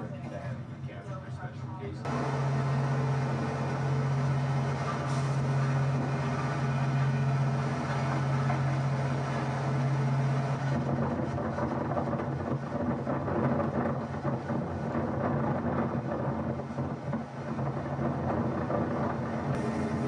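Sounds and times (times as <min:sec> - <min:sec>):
train rumbling and rattling: 0:00.0 - 0:20.0.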